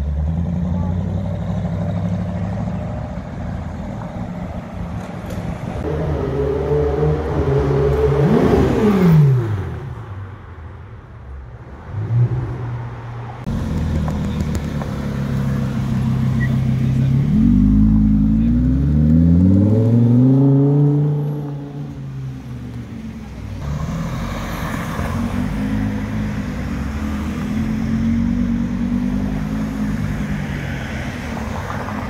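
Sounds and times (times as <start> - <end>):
engine revving: 5.8 - 9.9, 13.4 - 22.0.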